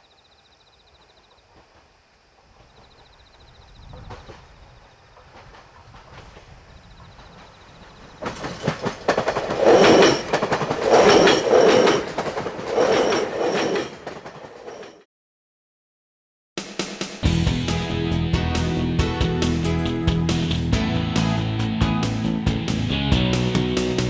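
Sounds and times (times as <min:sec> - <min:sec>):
electric train passing: 0:02.6 - 0:15.0
wheels clattering over rail joints: 0:02.6 - 0:15.0.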